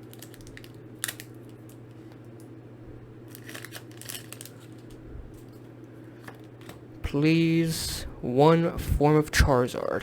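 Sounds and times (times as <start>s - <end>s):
foil pack snapping: 0.0s - 1.8s, 3.3s - 5.0s
foil crinkling and clicks: 0.0s - 2.5s, 3.3s - 5.0s
low electrical hum: 0.0s - 10.0s.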